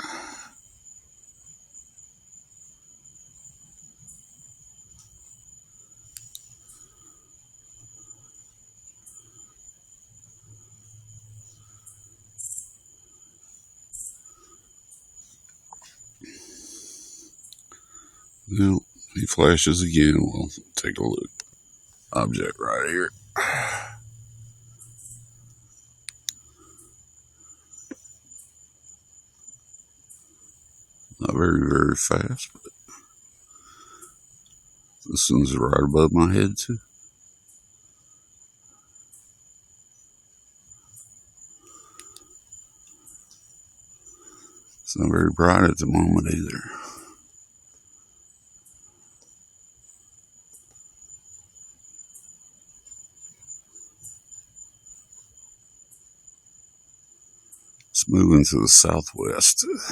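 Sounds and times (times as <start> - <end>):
crickets trilling: 0.0 - 59.9
soft clicks: 6.1 - 6.6, 25.5 - 26.5, 41.9 - 43.4
low hum: 22.1 - 27.6.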